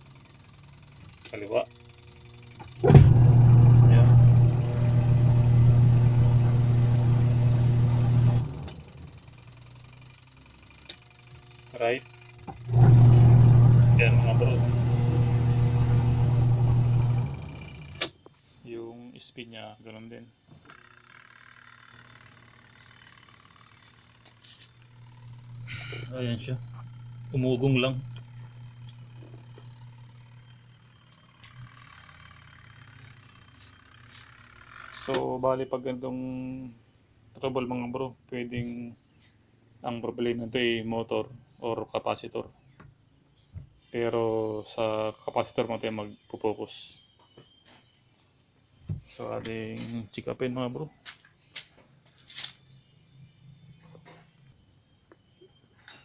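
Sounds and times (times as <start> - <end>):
washing machine motor humming: 0.0 - 18.1, 21.1 - 35.2.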